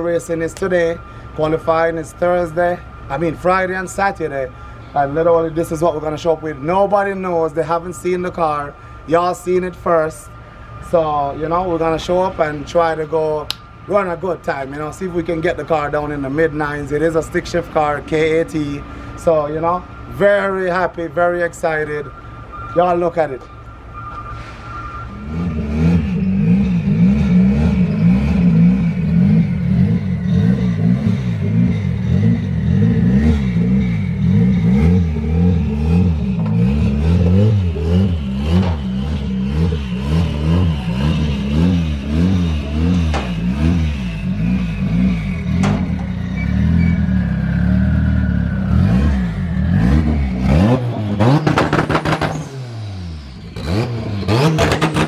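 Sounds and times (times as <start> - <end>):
engine rev blips: 0.0 - 55.0
car engine revving unevenly: 9.9 - 55.0.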